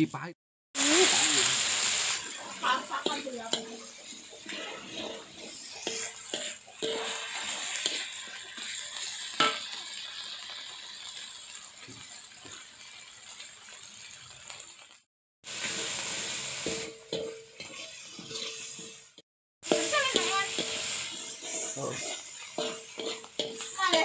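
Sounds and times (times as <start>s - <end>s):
metal spatula scraping wok: 0.8s - 14.5s, 15.5s - 24.0s
spice paste sizzling in oil: 0.8s - 24.0s
spatula knocking on wok: 21.6s - 24.0s.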